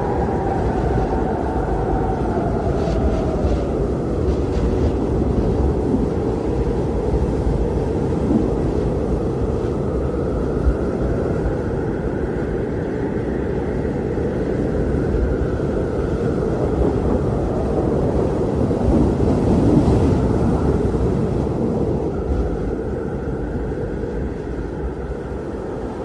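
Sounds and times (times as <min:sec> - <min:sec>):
blizzard wind rumbling: 0:00.0 - 0:26.0.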